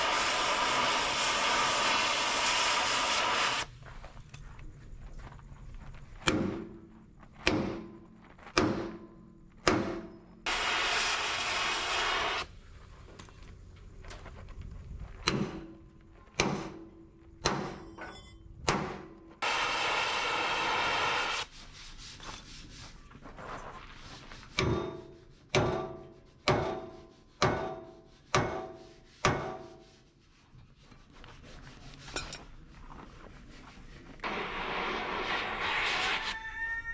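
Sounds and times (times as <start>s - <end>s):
hiss: 0.0s - 3.8s, 10.5s - 13.0s, 19.4s - 23.0s, 34.2s - 36.6s.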